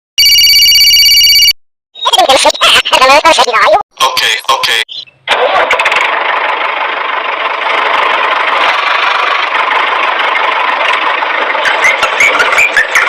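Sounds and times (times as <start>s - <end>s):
tractor engine idling: 5.3s - 13.0s.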